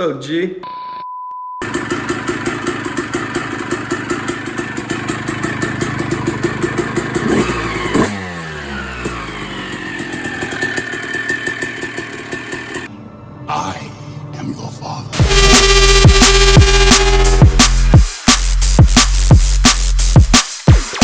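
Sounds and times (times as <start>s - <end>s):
engine revving: 1.6s - 12.9s, 15.2s - 21.0s
two-stroke motorcycle engine idling: 1.6s - 12.9s.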